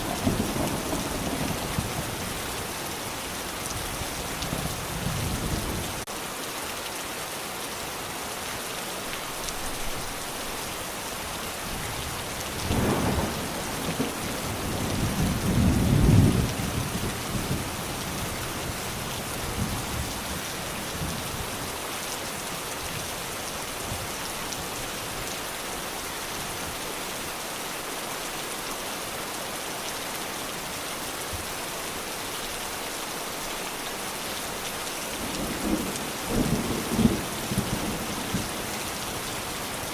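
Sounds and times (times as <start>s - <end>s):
low rumble of thunder: 0.0s - 2.4s, 12.6s - 18.8s, 35.2s - 38.6s
steady rain falling: 0.0s - 39.9s.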